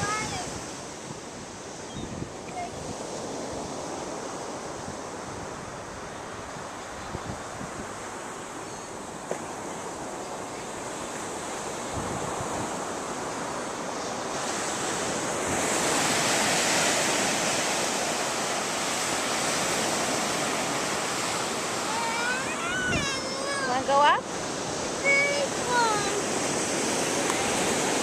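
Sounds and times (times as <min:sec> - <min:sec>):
ocean surf washing on beach: 0:00.0 - 0:28.0
wave breaking and rushing in: 0:13.9 - 0:28.0.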